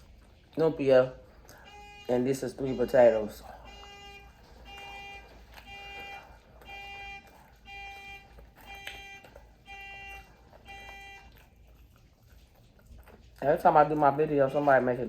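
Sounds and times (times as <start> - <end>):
electronic alarm beeping: 1.6 - 11.4.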